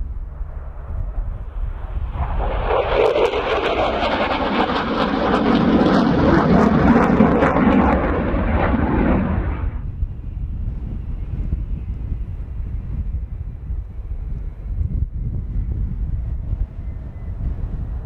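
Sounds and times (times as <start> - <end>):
fighter jets flying past: 0.0 - 11.6.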